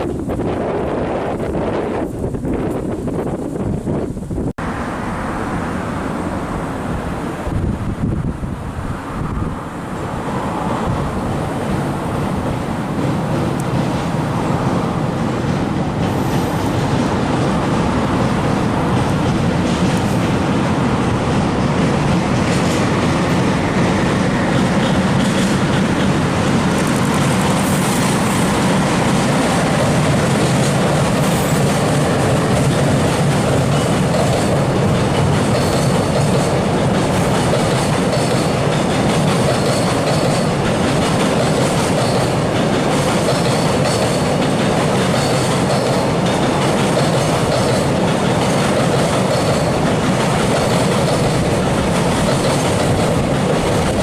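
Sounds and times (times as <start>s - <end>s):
wagon wheels clattering over rails: 28.6s - 54.0s.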